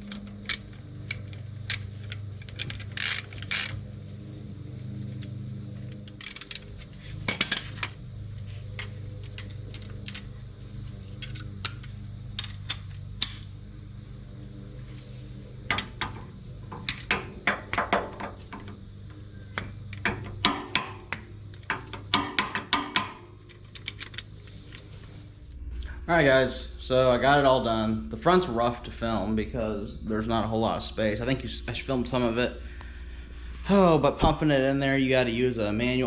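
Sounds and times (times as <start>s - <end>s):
sharp ratchet clicks: 0.0s - 3.9s, 5.9s - 6.8s.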